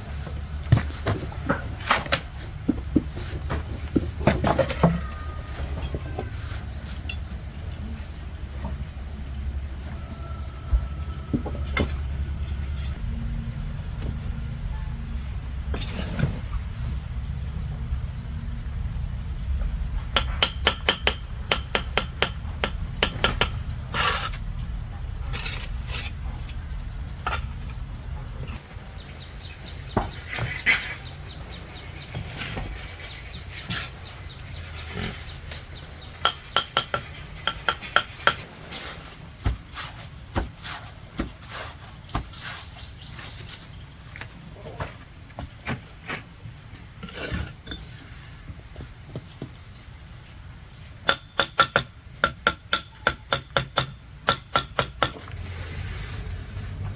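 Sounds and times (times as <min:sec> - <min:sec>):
low motor rumble: 0:00.0 - 0:20.4, 0:55.2 - 0:56.9.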